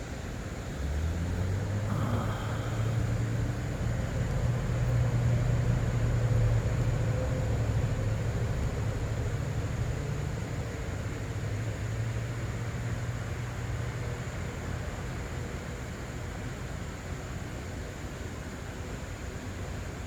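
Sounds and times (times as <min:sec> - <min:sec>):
low engine drone: 0:00.7 - 0:09.3.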